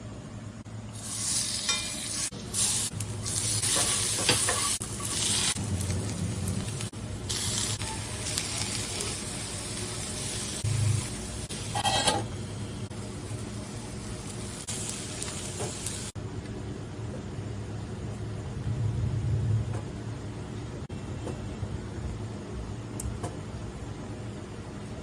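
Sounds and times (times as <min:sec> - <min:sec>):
food sizzling in a pan: 0:00.9 - 0:16.2.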